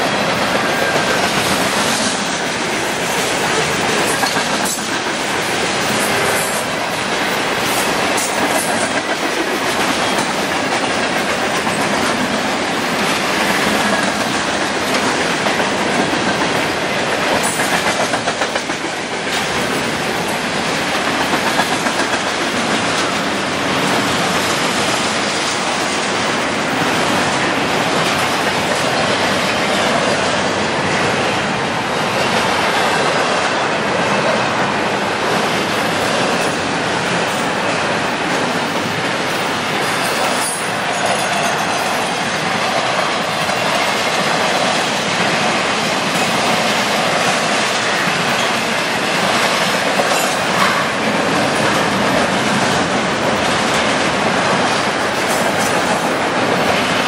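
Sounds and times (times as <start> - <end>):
train wheels clacking over rail joints: 0.0 - 57.0.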